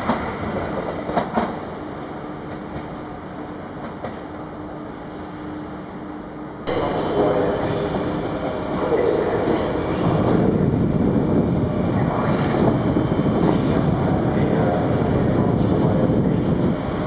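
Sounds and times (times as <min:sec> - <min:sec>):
electric train wheels on rails: 0:06.7 - 0:17.0.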